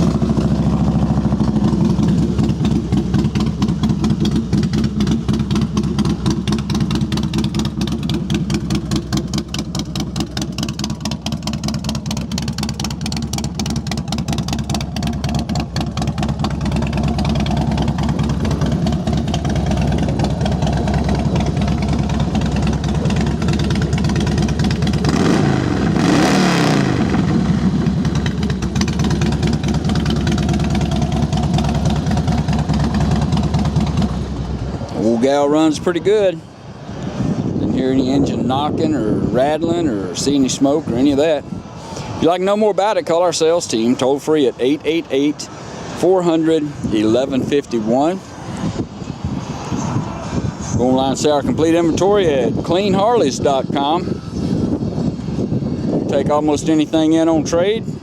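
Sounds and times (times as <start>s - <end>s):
motorcycle engine idling: 0.0s - 26.0s, 27.0s - 35.9s.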